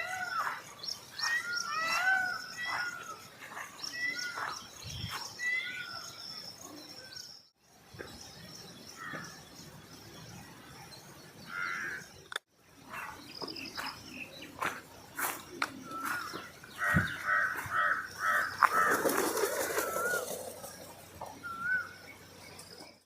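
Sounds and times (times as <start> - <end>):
loud bird call: 0.0 - 6.2, 15.2 - 20.6
high insect or bird trill: 0.0 - 23.0
small birds chirping: 0.0 - 23.0.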